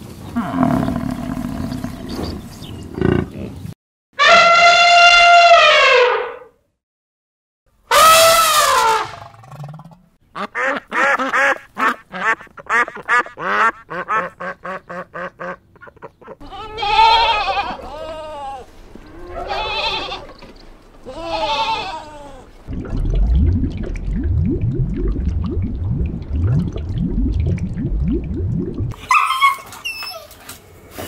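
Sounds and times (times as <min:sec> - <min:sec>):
ducks quacking: 0:10.3 - 0:16.5
goats bleating: 0:16.4 - 0:20.3, 0:21.1 - 0:22.5.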